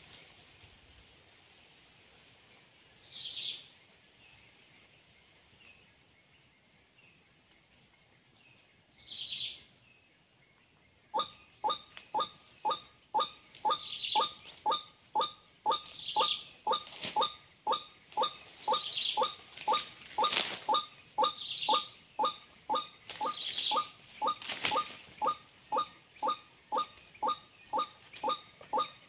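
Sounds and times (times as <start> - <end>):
higher bird chirps: 11.1 - 29.0
waterhen call: 11.2 - 29.0.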